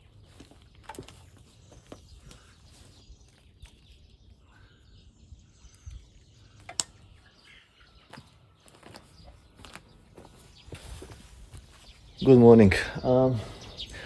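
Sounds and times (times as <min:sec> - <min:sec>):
faint bird chirps: 0:00.0 - 0:14.0
small clicks: 0:06.6 - 0:07.0.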